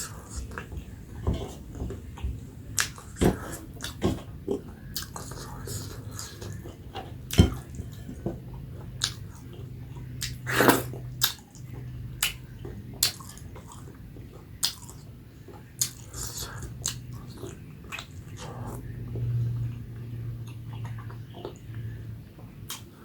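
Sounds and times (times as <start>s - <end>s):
biting and chewing food: 0.0s - 23.0s
steady low hum: 0.0s - 23.0s.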